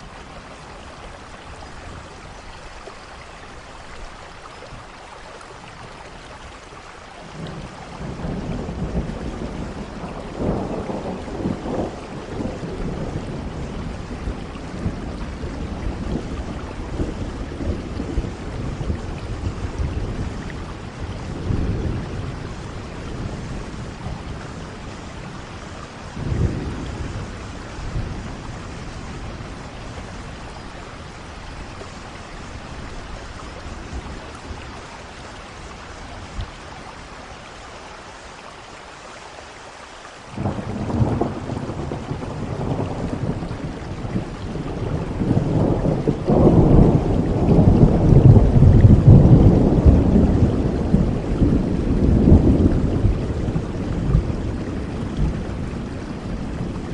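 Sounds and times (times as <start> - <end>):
rain falling: 0.0 - 56.9
thunder rumbling: 7.3 - 36.6, 40.4 - 56.9
thunderclap: 7.4 - 30.4, 40.4 - 56.9.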